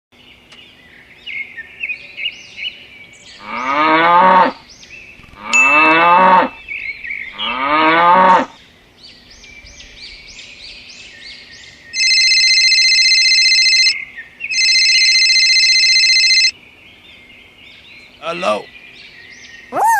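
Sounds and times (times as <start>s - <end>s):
cow mooing: 5.4s - 6.6s, 7.4s - 8.6s
steady high-pitched tone: 5.6s - 6.2s, 14.6s - 16.5s.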